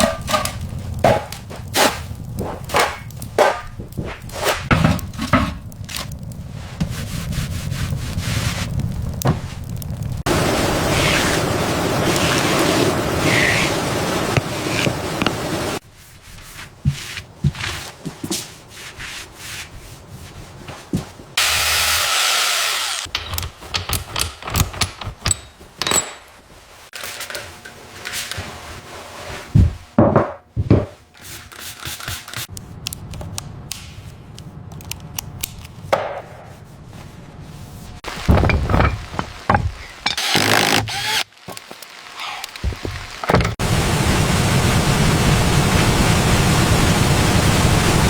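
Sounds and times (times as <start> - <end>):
rubbing and scraping: 0.0 - 9.7, 10.8 - 21.4, 36.5 - 43.6.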